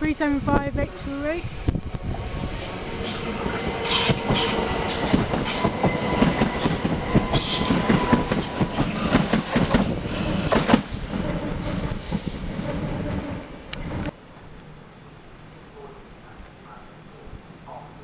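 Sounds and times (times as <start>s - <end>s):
train wheels clattering over rails: 0.1s - 14.1s.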